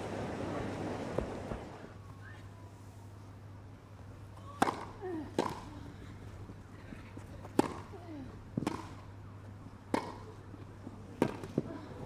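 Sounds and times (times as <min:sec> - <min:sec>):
tennis ball struck by racquet: 0:04.6 - 0:05.7, 0:07.5 - 0:07.9, 0:08.6 - 0:09.0, 0:09.9 - 0:10.2, 0:11.2 - 0:11.7.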